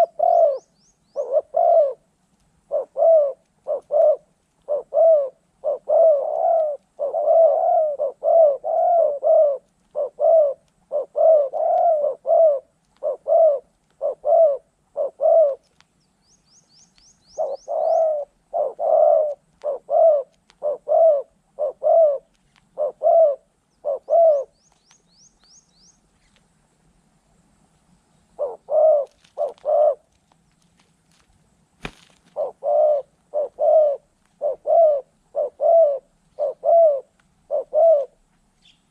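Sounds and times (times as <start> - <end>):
dove cooing: 0.0 - 15.8, 17.2 - 26.4, 28.3 - 30.2, 31.8 - 38.9
faint high chirps: 23.7 - 26.5.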